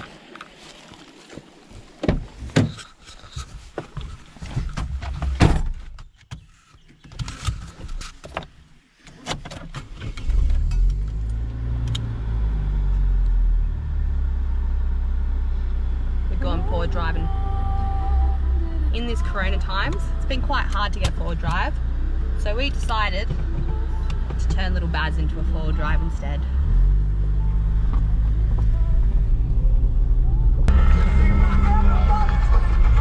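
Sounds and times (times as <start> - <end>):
knocks and clatter: 2.0 - 6.5, 23.2 - 24.9
car engine running: 10.2 - 33.0.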